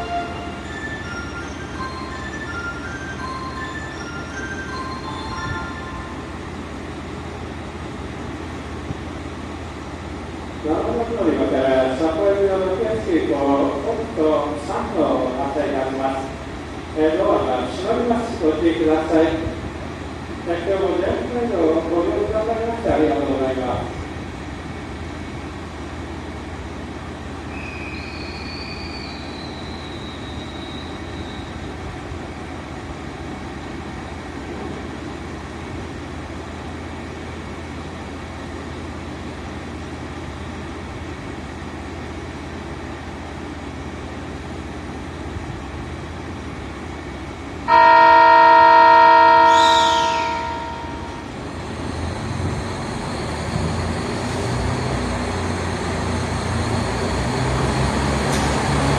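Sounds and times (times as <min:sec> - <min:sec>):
diesel engines rumbling: 0:00.0 - 0:58.9
diesel train humming: 0:00.0 - 0:58.9
train horn: 0:47.7 - 0:51.3.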